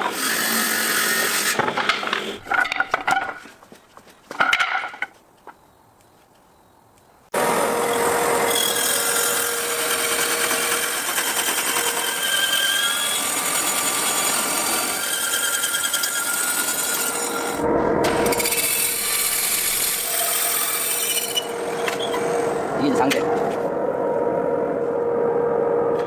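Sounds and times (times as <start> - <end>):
power tool grinding wood: 7.4 - 17.6
faint wavering squeals: 21.1 - 22.9.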